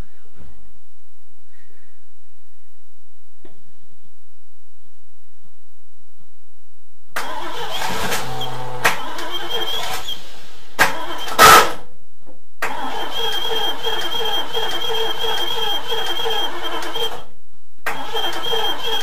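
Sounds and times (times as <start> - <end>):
car engine cranking on starter: 7.2 - 11.8, 12.6 - 17.3, 17.9 - 19.0
loud thump: 7.7 - 11.8.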